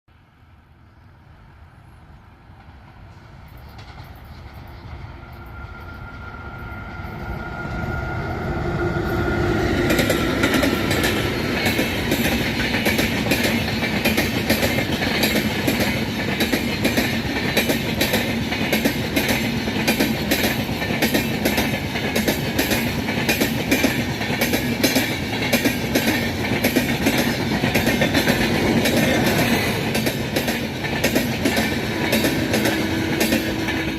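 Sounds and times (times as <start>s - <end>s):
electric train passing: 0.1s - 33.9s
wheels clacking over rail joints: 9.7s - 33.9s.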